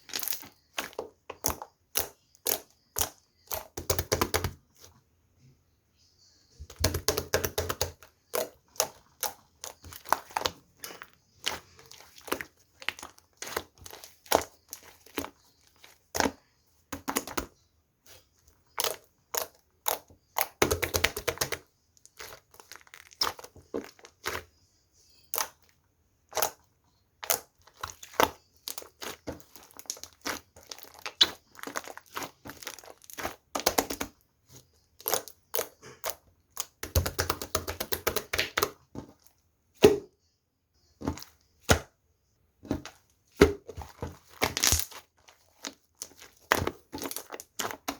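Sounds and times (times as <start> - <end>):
slime crackling: 0.0 - 4.6, 6.7 - 17.5, 18.1 - 40.0, 42.6 - 47.9
slime popping and clicking: 44.4 - 45.0.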